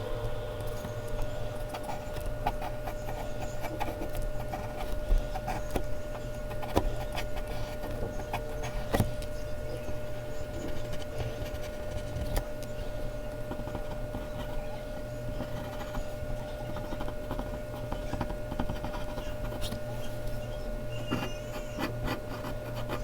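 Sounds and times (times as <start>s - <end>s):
pencil scratching on paper: 1.6s - 9.1s, 13.3s - 20.4s, 21.0s - 23.0s.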